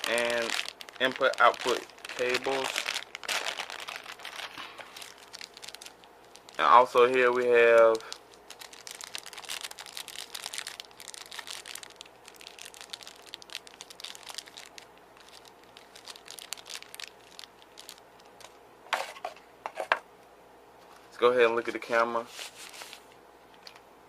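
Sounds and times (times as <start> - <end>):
handling noises: 0.0 - 8.5, 17.8 - 20.0
packaging crinkling and rustling: 0.0 - 19.4, 21.9 - 23.8.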